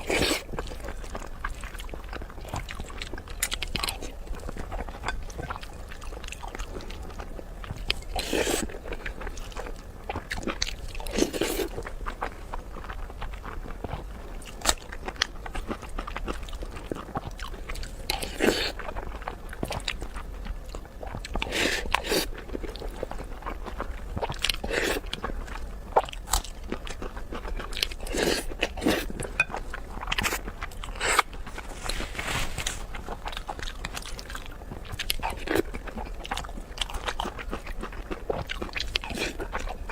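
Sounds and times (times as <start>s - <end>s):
person chewing and biting: 24.2s - 39.9s.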